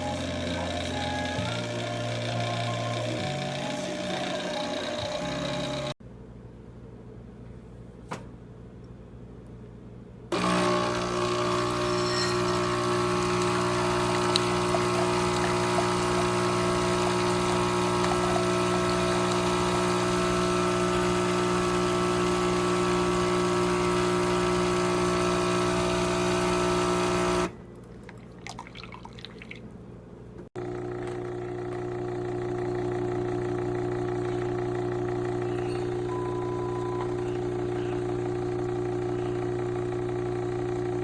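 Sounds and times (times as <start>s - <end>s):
espresso machine pump buzzing: 0.0s - 6.0s, 10.3s - 27.5s, 30.6s - 41.0s
soft steady machine hum: 29.8s - 41.0s.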